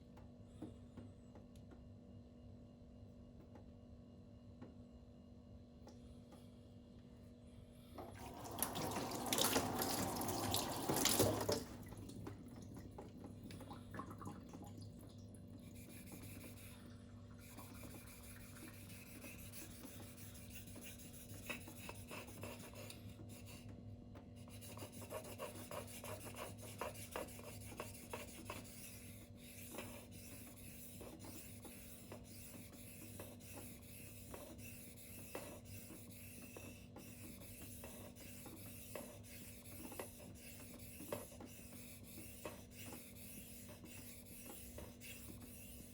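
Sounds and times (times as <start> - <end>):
knife scraping on whetstone: 38.2 - 45.9.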